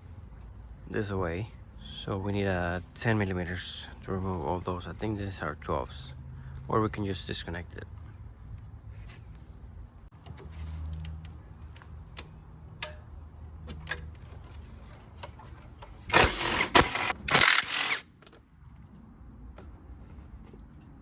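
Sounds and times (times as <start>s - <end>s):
tools clicking and tapping: 11.0s - 18.4s
cordless power tool whirring: 16.0s - 18.0s.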